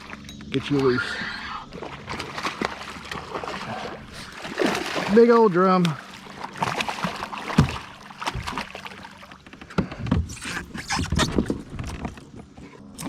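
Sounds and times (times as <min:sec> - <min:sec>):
fish thrashing: 0:00.0 - 0:09.8
knocks and thumps against hull: 0:01.7 - 0:13.0.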